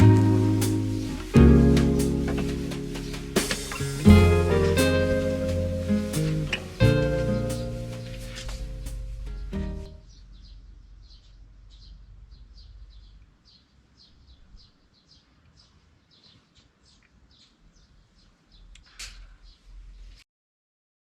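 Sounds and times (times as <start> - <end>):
guitar music: 0.0 - 10.0
faint low rumble: 0.0 - 13.4
small birds chirping: 0.0 - 20.2.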